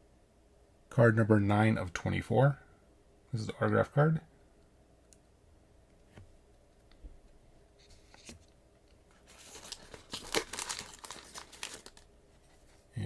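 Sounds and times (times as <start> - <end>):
card packaging rustling: 9.1 - 12.8.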